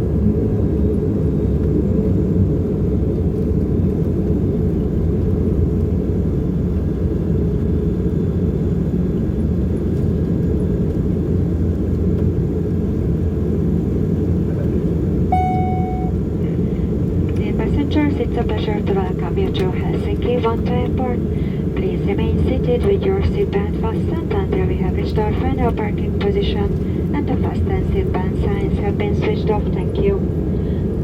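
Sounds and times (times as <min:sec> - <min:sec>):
turboprop cabin rumble: 0:00.0 - 0:31.0
short chime tone: 0:15.3 - 0:16.2.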